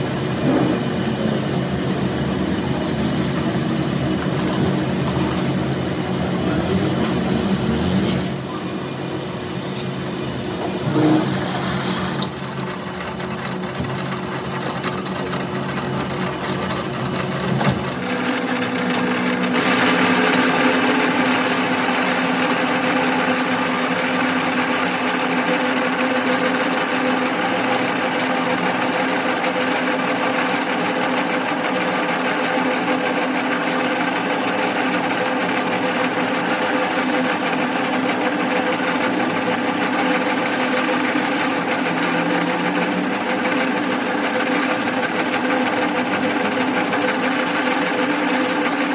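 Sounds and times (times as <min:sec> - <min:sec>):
machine motor humming: 0:17.8 - 0:31.7.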